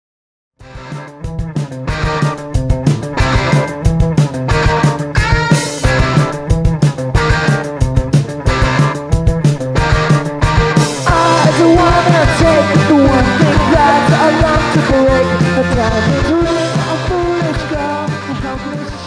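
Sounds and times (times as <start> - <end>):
guitar: 0.6 - 19.0
steady drum beat: 0.7 - 19.0
person singing: 11.0 - 19.0.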